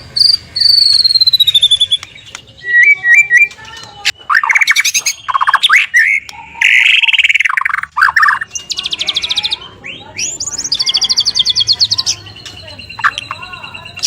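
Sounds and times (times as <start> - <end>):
bird singing rattling trills: 0.0 - 14.0.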